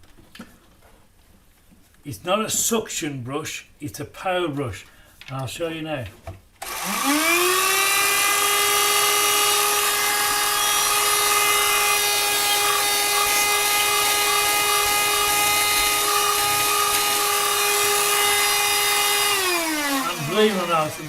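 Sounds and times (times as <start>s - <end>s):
vacuum cleaner motor whine: 6.6s - 21.0s.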